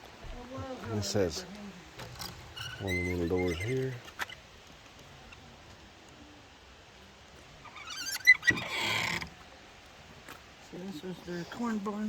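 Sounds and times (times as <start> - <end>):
scraping rustle: 0.0 - 5.8
wooden door hinges creaking: 2.0 - 4.4.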